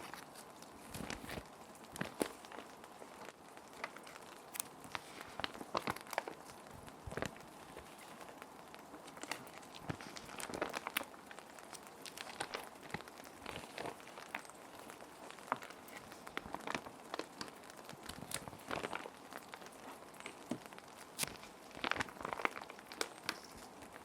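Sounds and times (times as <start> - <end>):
plastic sheet protectors crinkling: 0.0 - 24.0.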